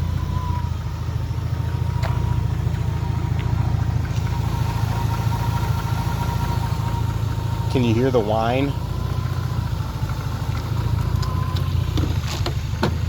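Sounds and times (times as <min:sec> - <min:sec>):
car engine idling: 0:00.0 - 0:13.0
high steady alternator whine: 0:00.0 - 0:13.0.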